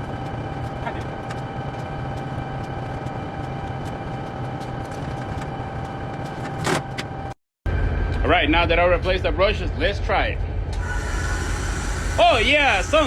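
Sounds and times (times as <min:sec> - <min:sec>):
constant whine: 0:00.0 - 0:13.0
diesel engine idling: 0:10.5 - 0:13.0.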